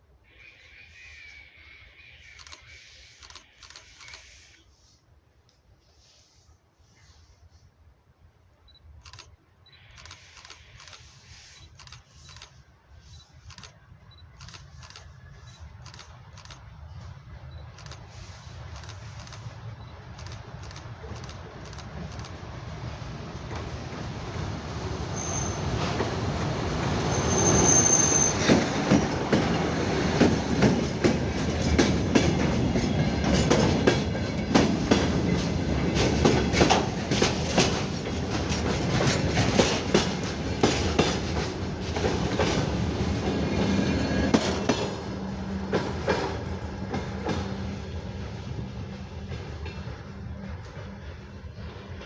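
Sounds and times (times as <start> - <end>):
train rumble: 7.2 - 52.0
high wheel squeal: 25.2 - 25.8, 27.0 - 29.3
train wheels clacking over rail joints: 25.7 - 47.9.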